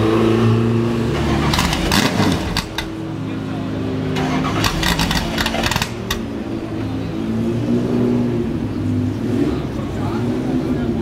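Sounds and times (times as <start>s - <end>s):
race car engine idling: 1.5s - 7.1s.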